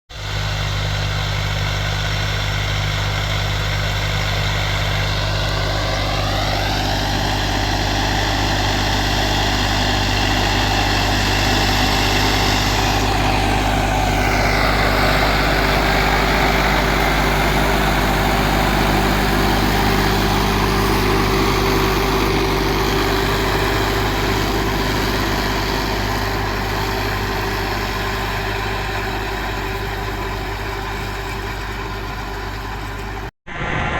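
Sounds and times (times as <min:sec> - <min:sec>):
tractor diesel engine drone: 0:00.1 - 0:33.9
falling pitch sweep: 0:33.5 - 0:33.9
rising tone: 0:33.5 - 0:33.9.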